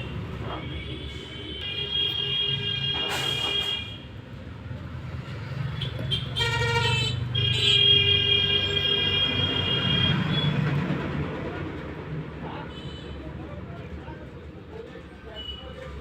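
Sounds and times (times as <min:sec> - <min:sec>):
rumble of engines: 0:00.0 - 0:16.0
long car horn blasts: 0:00.8 - 0:04.0, 0:06.1 - 0:10.5.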